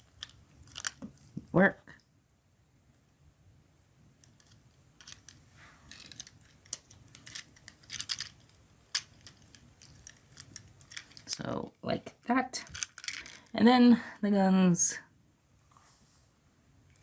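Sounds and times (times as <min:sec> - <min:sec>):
plastic toy parts clicking and scraping: 0:00.0 - 0:01.4, 0:04.2 - 0:13.6.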